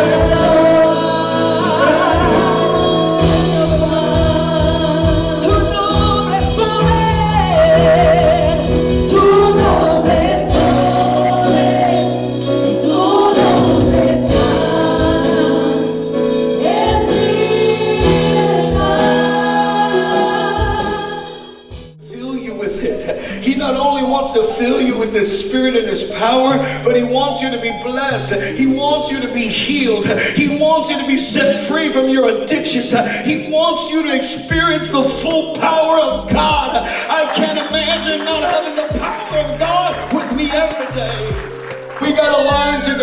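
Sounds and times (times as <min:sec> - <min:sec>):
steady drum beat: 0:00.0 - 0:15.9, 0:16.6 - 0:22.0, 0:36.3 - 0:43.0
singer and choir with band: 0:00.0 - 0:29.0.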